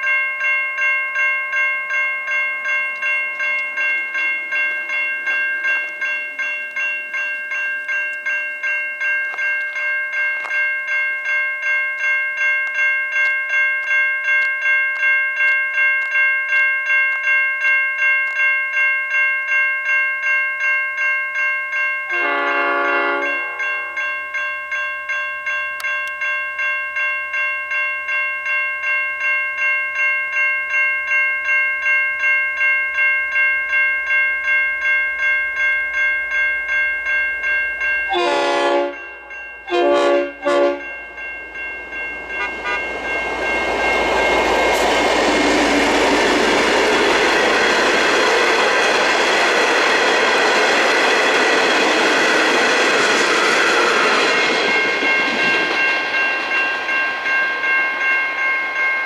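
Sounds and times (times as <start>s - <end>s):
level crossing bells ringing: 0.0s - 59.0s
train horn blasts: 22.1s - 23.8s, 38.1s - 41.0s, 42.3s - 47.4s
train wheels on rails: 37.3s - 59.0s.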